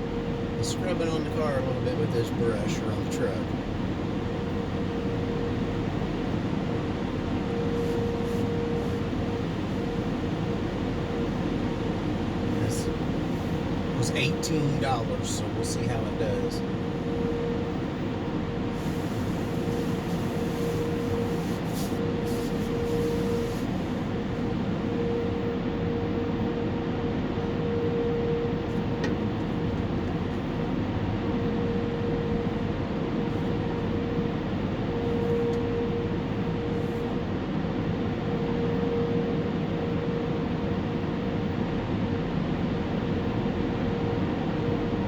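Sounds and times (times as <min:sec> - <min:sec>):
car wash machinery rumble and hiss: 0:00.0 - 0:45.0.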